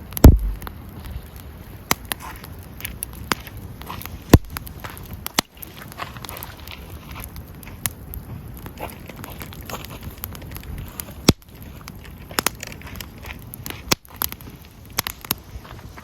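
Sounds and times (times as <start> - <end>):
low steady rumble: 0.0 - 0.9
wood fire crackling and popping: 0.0 - 16.0.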